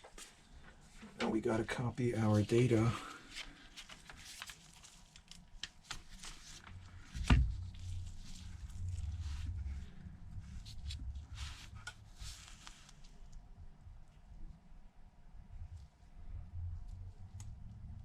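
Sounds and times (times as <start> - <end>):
low rumble of handling noise: 5.8 - 18.0.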